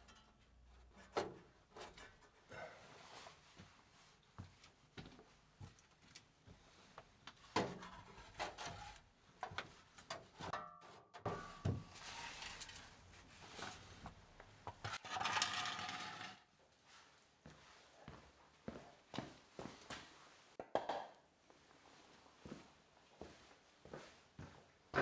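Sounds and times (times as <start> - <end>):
hissing or scraping: 11.9 - 14.0.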